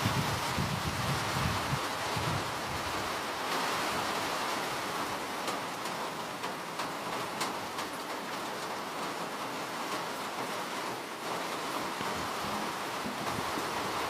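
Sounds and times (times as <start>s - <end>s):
steady rain hissing: 0.0s - 14.0s
raindrops ticking: 4.9s - 13.8s.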